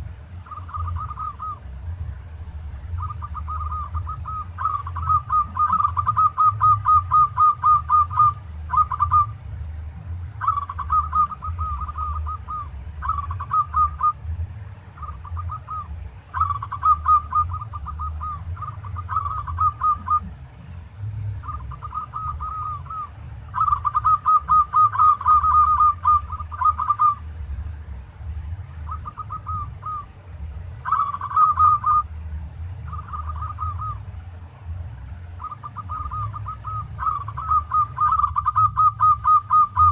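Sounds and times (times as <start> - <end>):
dove cooing: 0.0 - 34.3, 35.3 - 39.9
steady low hum: 0.0 - 39.9.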